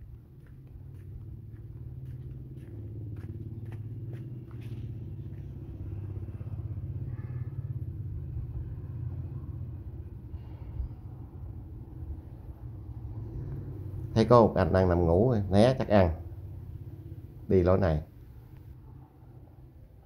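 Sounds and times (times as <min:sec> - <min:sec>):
engine low rumble: 0:00.0 - 0:20.0.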